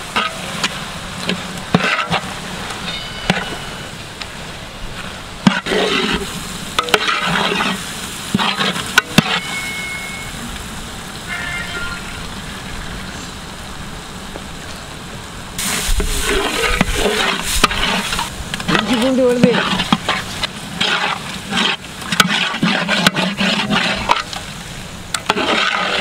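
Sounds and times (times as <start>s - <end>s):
onions and tomatoes sizzling in oil: 0.0s - 26.0s
ladle scraping pan bottom: 0.1s - 4.0s, 5.4s - 10.3s, 15.6s - 26.0s.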